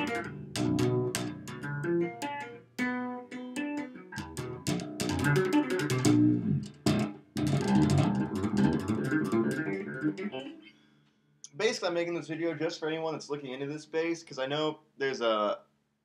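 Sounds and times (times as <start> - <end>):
bass guitar tapped notes: 0.0 - 10.6.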